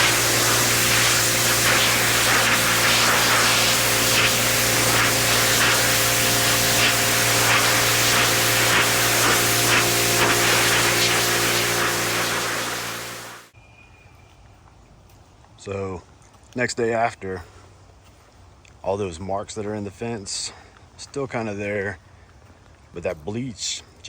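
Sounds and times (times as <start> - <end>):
motor hum: 0.0 - 13.5
pressure washer spray hissing: 0.0 - 13.5.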